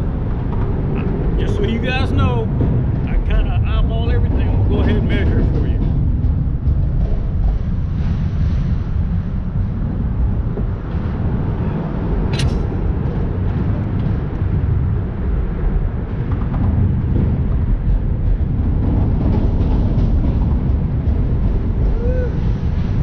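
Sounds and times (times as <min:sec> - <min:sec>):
wind buffeting microphone: 0:00.0 - 0:23.0
sharp click: 0:12.3 - 0:12.7.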